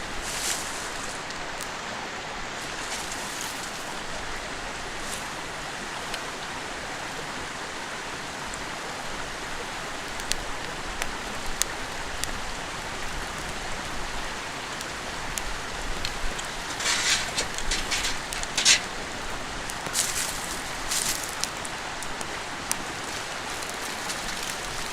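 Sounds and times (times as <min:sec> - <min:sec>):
stream rushing: 0:00.0 - 0:24.9
close crackling clatter: 0:02.6 - 0:04.1, 0:15.4 - 0:24.9.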